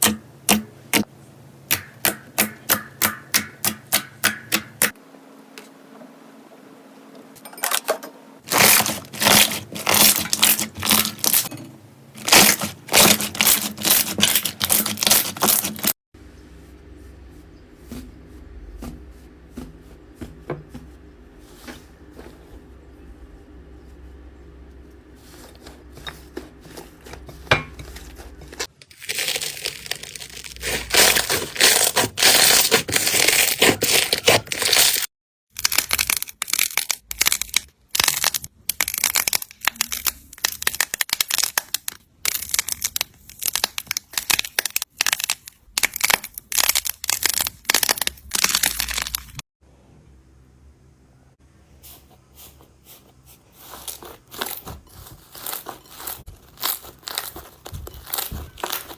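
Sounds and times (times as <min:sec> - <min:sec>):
slime crackling and popping: 0:12.3 - 0:15.9, 0:28.9 - 0:49.4, 0:55.4 - 0:58.9.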